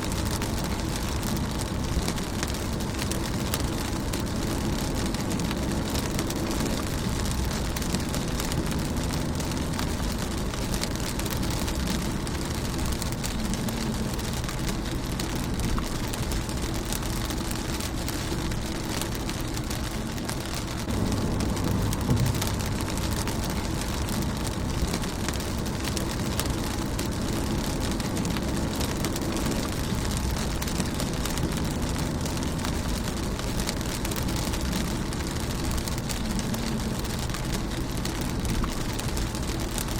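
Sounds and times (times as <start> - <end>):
rain on car windshield: 0.0 - 39.9.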